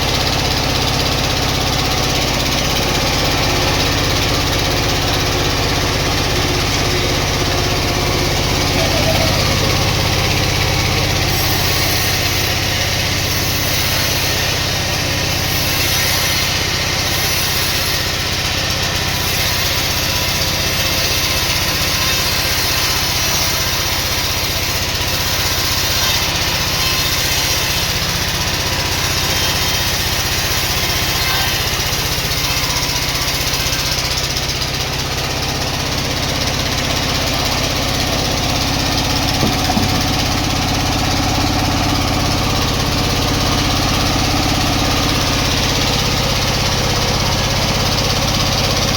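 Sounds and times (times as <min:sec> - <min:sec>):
low engine drone: 0:00.0 - 0:13.6, 0:35.7 - 0:48.9.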